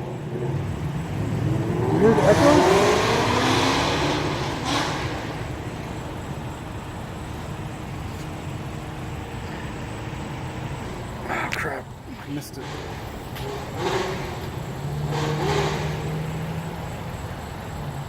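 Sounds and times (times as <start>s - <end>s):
car exhaust after acceleration: 0.0s - 11.3s, 12.6s - 18.0s
low engine rumble: 4.0s - 18.0s.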